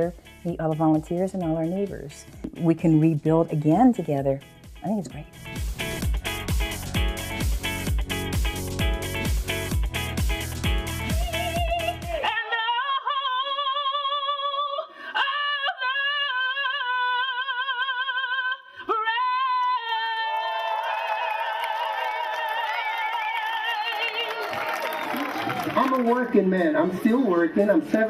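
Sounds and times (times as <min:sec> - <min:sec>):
soundtrack music: 0:00.0 - 0:12.3
woman singing with vibrato: 0:11.1 - 0:20.7.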